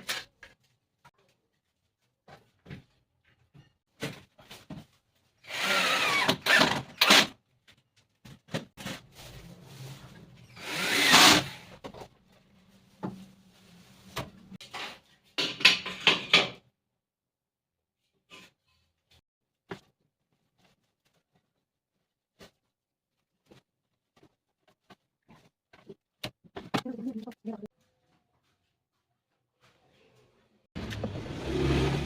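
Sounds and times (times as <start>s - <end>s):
power tool working wood: 10.6s - 11.6s.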